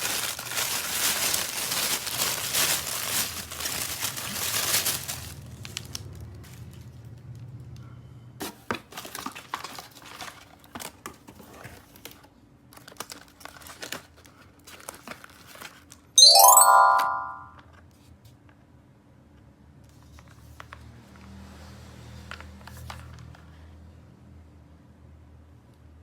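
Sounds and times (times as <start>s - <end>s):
packaging crinkling: 0.0s - 5.3s.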